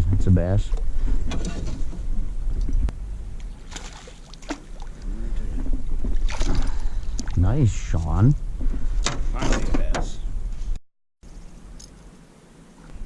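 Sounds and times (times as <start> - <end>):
water splashes: 3.5 - 7.4.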